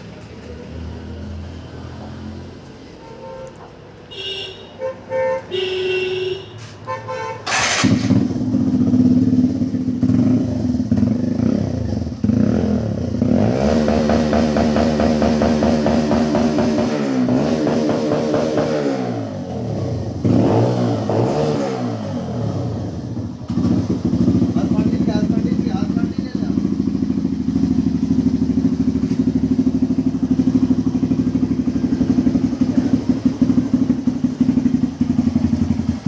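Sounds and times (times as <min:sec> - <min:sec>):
motorcycle engine revving: 0:07.4 - 0:36.0.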